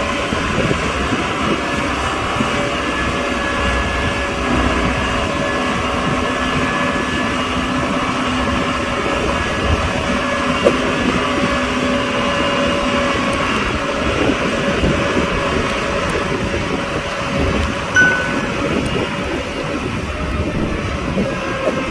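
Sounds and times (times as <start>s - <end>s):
brief high tone: 18.0s - 19.1s.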